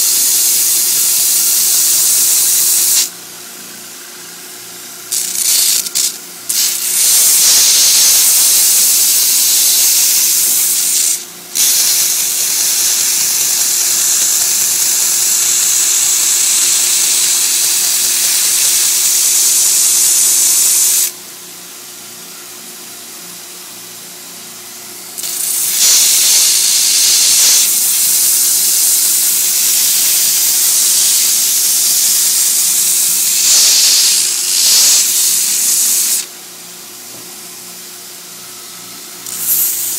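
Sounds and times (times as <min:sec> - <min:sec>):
loud grinding hiss: 0:00.0 - 0:03.1, 0:05.1 - 0:21.1, 0:25.1 - 0:36.3, 0:39.2 - 0:39.9
belt grinder motor humming: 0:05.1 - 0:21.1, 0:39.2 - 0:39.9.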